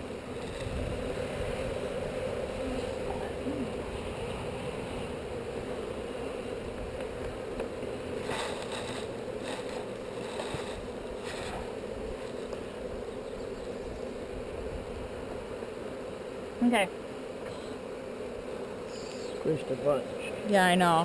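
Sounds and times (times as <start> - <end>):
honeybees buzzing: 0.0 - 21.0.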